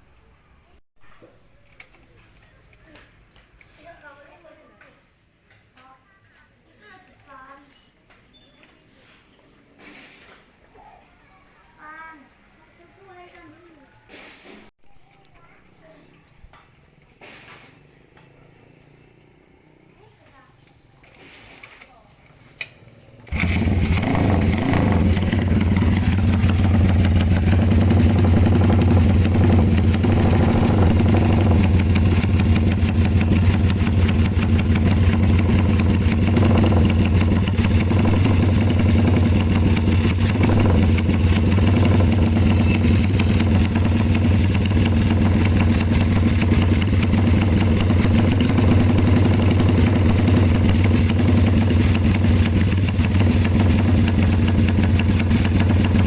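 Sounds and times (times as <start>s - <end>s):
motorcycle engine idling: 23.2s - 56.0s.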